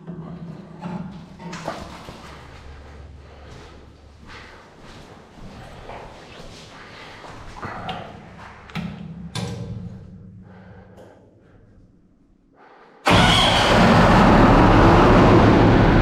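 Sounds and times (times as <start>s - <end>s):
pump engine running: 13.1s - 16.0s.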